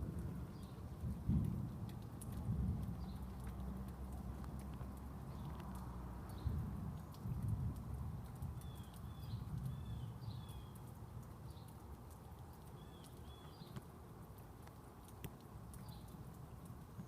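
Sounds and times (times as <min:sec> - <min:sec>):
thunder rumbling: 0:00.0 - 0:03.0
faint clicks: 0:01.0 - 0:17.0
bird chirping: 0:08.6 - 0:11.8, 0:12.6 - 0:13.8.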